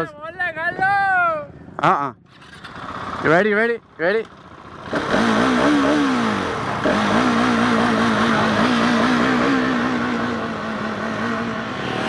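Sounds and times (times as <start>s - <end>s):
motorcycle engine revving high: 4.6s - 12.0s.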